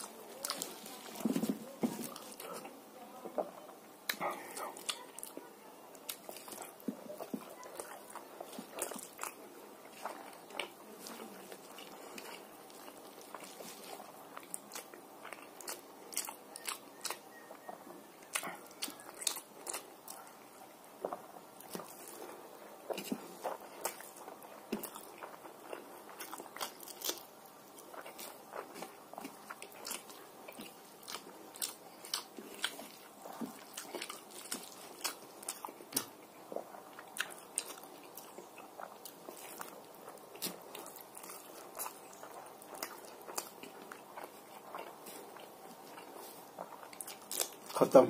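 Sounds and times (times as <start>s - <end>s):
person chewing food: 0.0s - 48.0s
mouth clicks and smacks: 4.0s - 5.3s.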